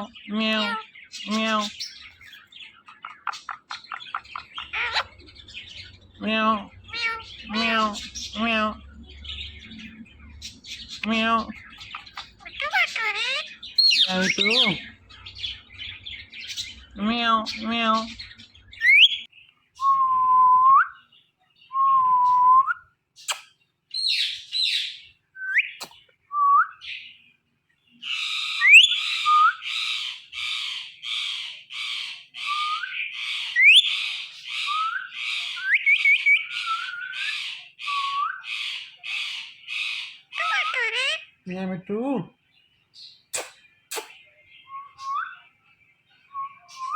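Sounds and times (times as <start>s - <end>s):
harsh parakeet calls: 0.0s - 19.3s, 28.0s - 41.4s
parakeets whistling: 0.4s - 20.0s, 28.2s - 30.0s, 32.4s - 38.7s, 39.8s - 41.3s.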